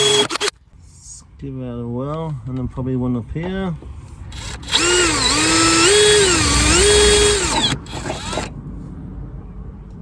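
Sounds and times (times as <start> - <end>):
power drill whine: 0.0 - 0.5, 4.4 - 8.5.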